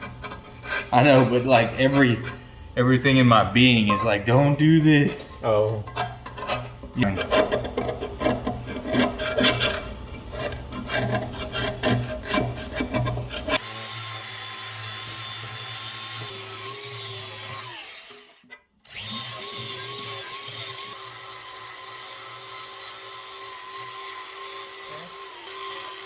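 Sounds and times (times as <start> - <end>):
metal scraper scraping iron skillet: 0.0 - 2.5, 3.6 - 13.6.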